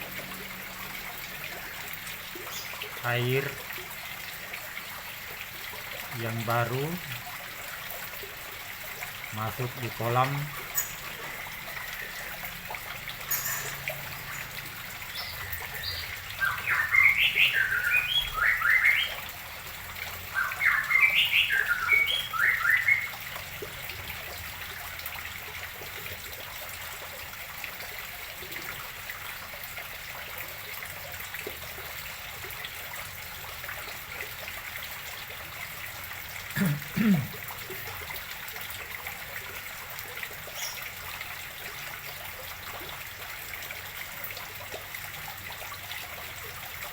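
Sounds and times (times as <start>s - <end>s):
water trickling into pond: 0.0s - 46.9s
bird chirping: 13.3s - 19.2s, 20.3s - 23.1s.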